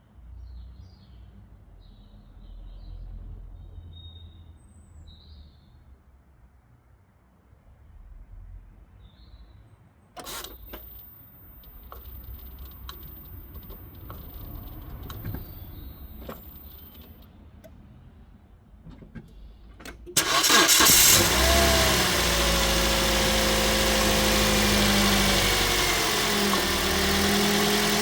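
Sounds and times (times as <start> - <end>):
clicks and handling noises: 10.2 - 17.8.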